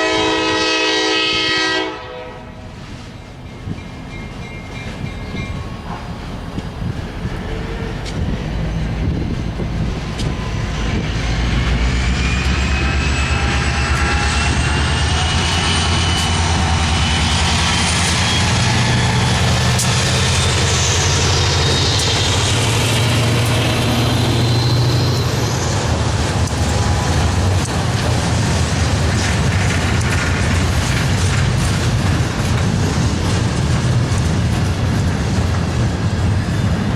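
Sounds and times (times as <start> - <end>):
train rumbling past: 0.0 - 36.9.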